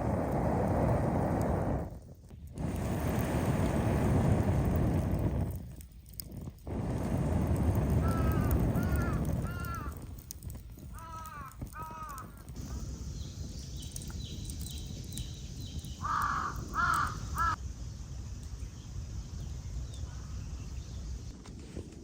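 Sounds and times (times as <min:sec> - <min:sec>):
crow cawing: 0:08.0 - 0:10.0, 0:10.9 - 0:12.4, 0:16.0 - 0:17.6
small bird chirps: 0:11.8 - 0:17.6.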